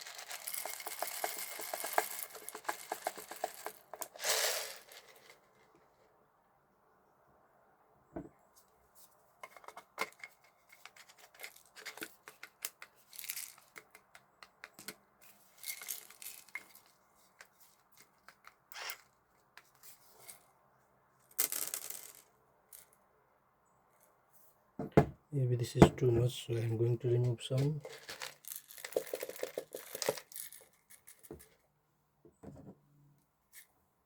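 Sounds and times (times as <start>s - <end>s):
peppercorns pouring: 0.0s - 5.6s, 10.8s - 14.0s, 14.6s - 16.9s, 26.5s - 31.5s
peppercorns rattling on plastic: 0.0s - 5.7s, 9.4s - 19.0s, 27.4s - 31.6s.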